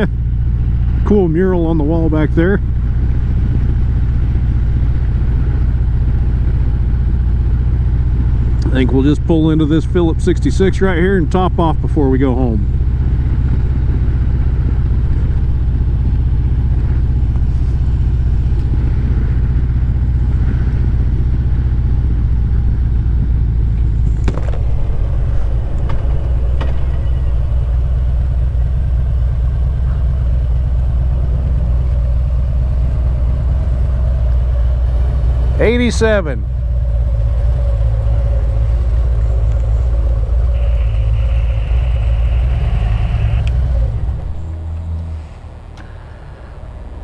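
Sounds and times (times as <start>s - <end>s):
motorcycle engine running at low revs: 0.0s - 47.0s.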